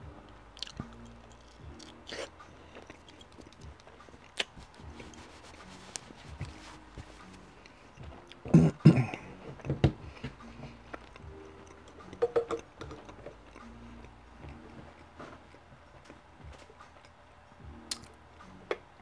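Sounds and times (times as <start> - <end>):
wet mouth sounds: 0.6 - 5.1
chewing bread: 0.6 - 12.2.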